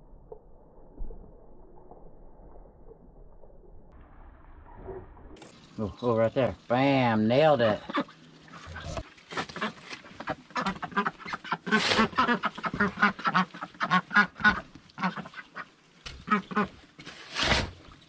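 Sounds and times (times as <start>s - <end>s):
ducks quacking: 7.5s - 16.8s.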